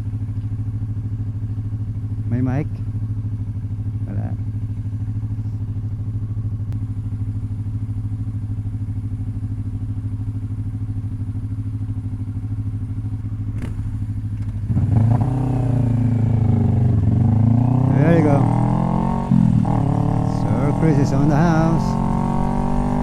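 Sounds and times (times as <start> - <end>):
motorcycle engine revving: 12.7 - 23.0.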